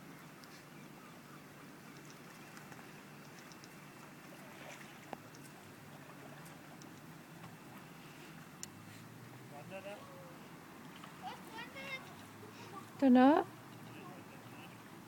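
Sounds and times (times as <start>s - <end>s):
faint water noise: 0.0s - 15.0s
small drips and ticks: 1.8s - 9.4s.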